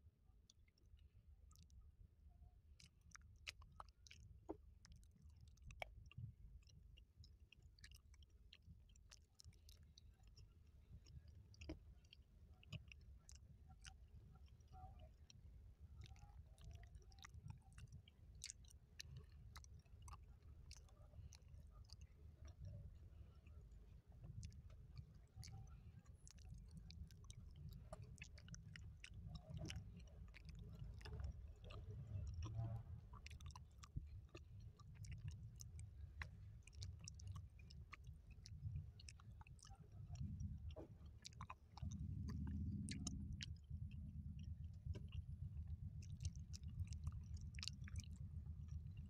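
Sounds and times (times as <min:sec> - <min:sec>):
chewing food: 0:00.4 - 0:02.0, 0:02.6 - 0:49.0
wet mouth clicks: 0:02.8 - 0:15.4, 0:16.0 - 0:45.3, 0:46.0 - 0:49.0
steady low hum: 0:21.0 - 0:49.0
low rumble: 0:41.8 - 0:49.0.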